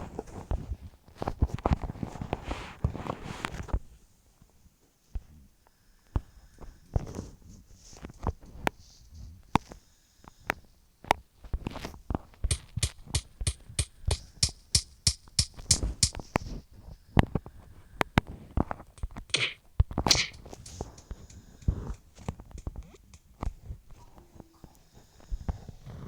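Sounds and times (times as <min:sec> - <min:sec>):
rapid sharp taps: 0:12.5 - 0:16.4, 0:18.9 - 0:23.6.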